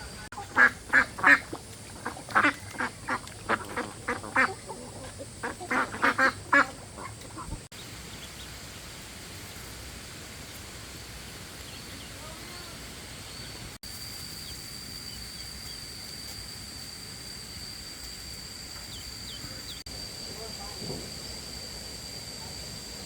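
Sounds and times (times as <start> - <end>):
ducks quacking: 0.0 - 7.7.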